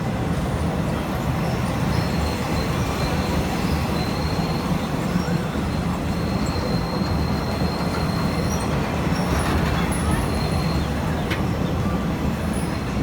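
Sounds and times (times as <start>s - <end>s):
train wheels rumbling: 0.1s - 13.0s
wheels squealing on rails: 0.1s - 13.0s.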